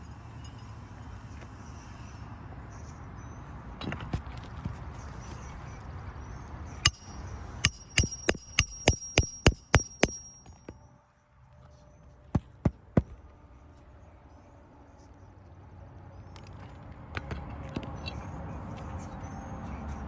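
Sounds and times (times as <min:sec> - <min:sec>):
high metallic ring: 0:06.8 - 0:10.8
hammer striking nails: 0:06.9 - 0:10.8.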